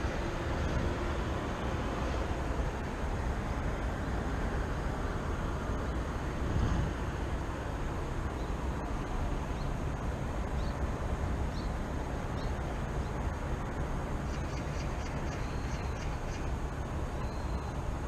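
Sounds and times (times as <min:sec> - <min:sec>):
distant city traffic rumble: 0:00.0 - 0:18.0
faint bird chirps: 0:14.3 - 0:16.5, 0:17.1 - 0:17.8.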